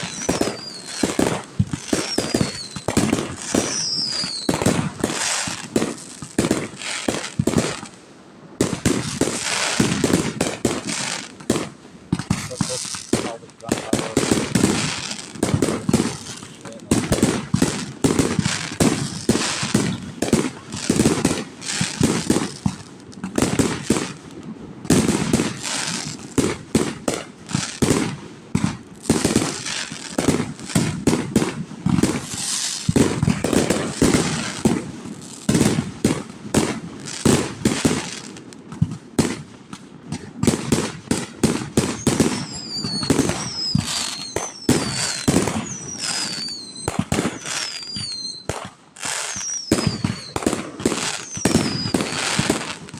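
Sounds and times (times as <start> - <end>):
falling firework whistles: 0.0 - 5.8, 41.4 - 52.9
fireworks booming and crackling: 0.0 - 52.9.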